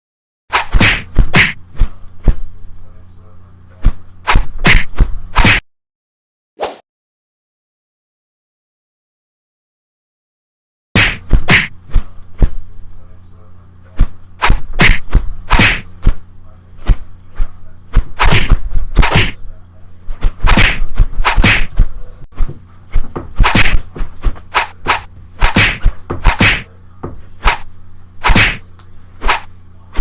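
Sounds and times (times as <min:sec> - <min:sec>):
sharp whacks and thuds: 0:00.5 - 0:02.4, 0:03.8 - 0:05.6, 0:11.0 - 0:12.6, 0:14.0 - 0:16.2, 0:16.8 - 0:17.0, 0:17.9 - 0:19.4, 0:20.1 - 0:28.6, 0:29.2 - 0:30.0
steady low hum: 0:00.5 - 0:05.6, 0:11.0 - 0:30.0.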